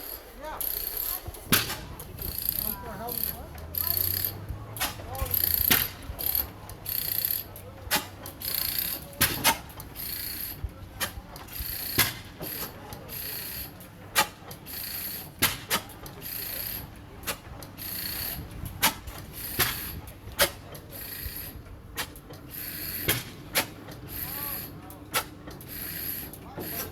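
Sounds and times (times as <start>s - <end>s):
mechanical clicks and knocks: 0.0s - 13.0s
stationary gas engine puffing: 0.0s - 26.9s.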